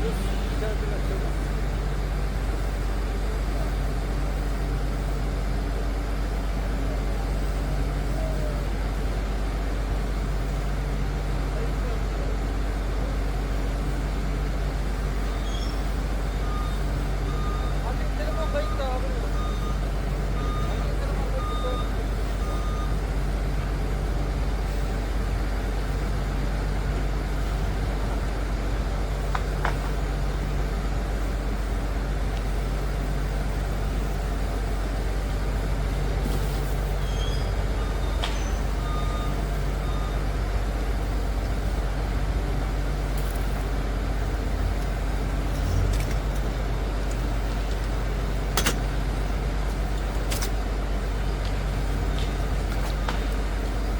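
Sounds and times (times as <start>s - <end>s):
diesel engine running: 0.0s - 53.9s
reversing alarm beeps: 15.2s - 23.0s, 37.0s - 40.4s.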